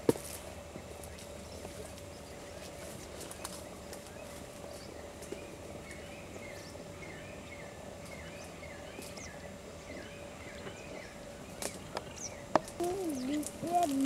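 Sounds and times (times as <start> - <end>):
faint steady hum: 0.0 - 14.0
bird chirping call: 4.7 - 14.0.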